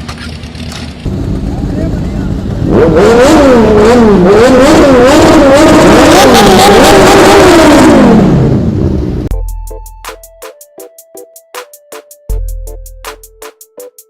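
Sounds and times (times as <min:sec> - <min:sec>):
motorcycle engine revving: 0:00.2 - 0:09.3.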